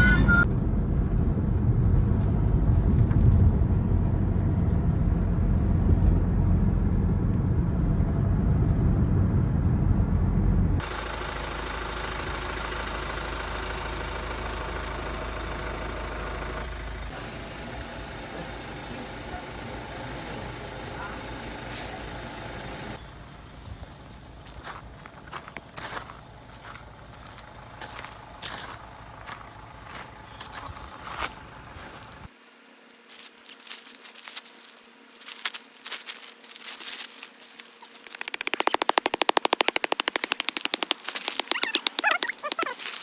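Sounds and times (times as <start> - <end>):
vehicle rumble: 0.0 - 32.4.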